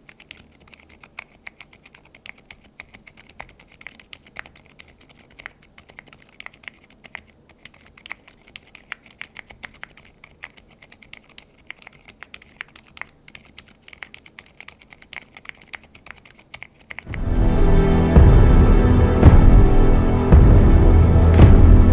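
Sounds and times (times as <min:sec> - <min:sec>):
quiet keyboard typing: 0:00.0 - 0:17.3.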